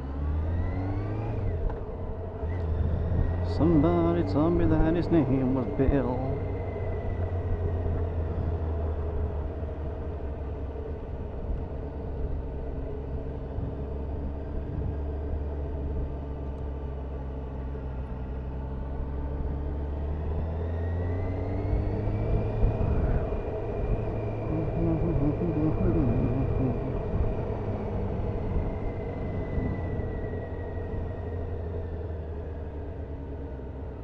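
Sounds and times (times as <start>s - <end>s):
wind and road noise: 0.0s - 34.0s
motorcycle engine running: 21.7s - 34.0s.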